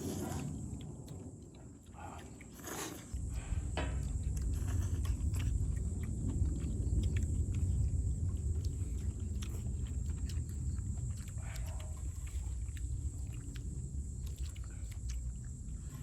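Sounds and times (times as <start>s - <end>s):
people chewing food: 0.0s - 16.0s
steady low rumble: 0.0s - 16.0s.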